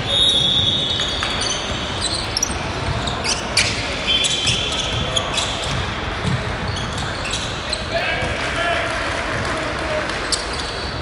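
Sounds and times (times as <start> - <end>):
shoe squeaks: 0.0 - 6.0, 6.6 - 8.0, 10.3 - 11.0
basketball bouncing: 2.2 - 3.7, 4.4 - 7.2.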